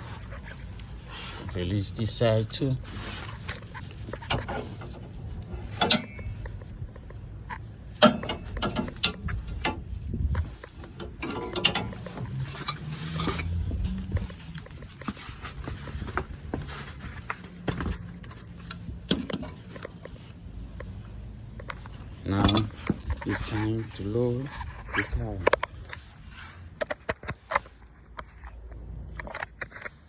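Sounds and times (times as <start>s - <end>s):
metal clicks and knocks: 4.1s - 13.5s.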